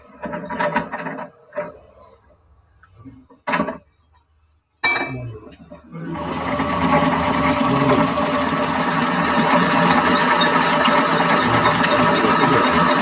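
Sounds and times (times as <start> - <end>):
lathe motor humming: 5.8 - 13.0.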